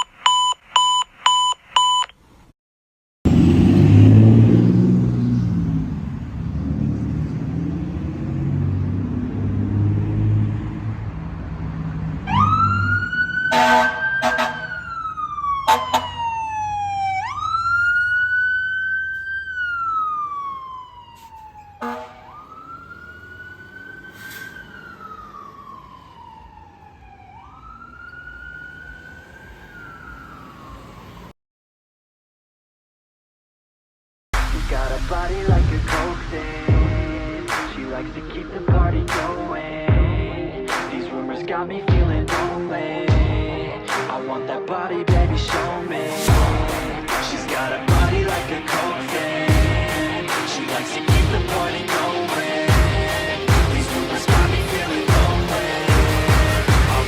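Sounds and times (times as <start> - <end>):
fire engine rumbling: 3.3 - 31.2, 34.4 - 41.8, 45.3 - 57.0
siren wailing: 12.2 - 31.3, 45.4 - 57.0
air horn blasts: 13.5 - 14.8, 15.7 - 16.2, 21.8 - 22.4.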